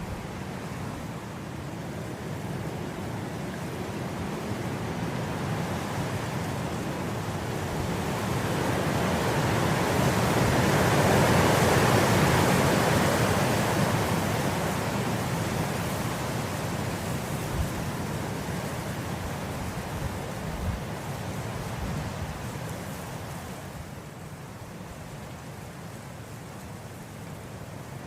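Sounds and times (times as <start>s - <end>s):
wind blowing through grass: 0.0s - 28.0s.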